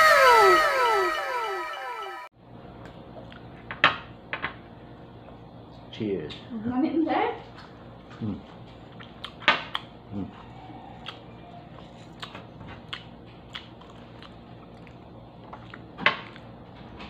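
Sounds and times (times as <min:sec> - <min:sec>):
person chewing food: 0:08.7 - 0:16.6.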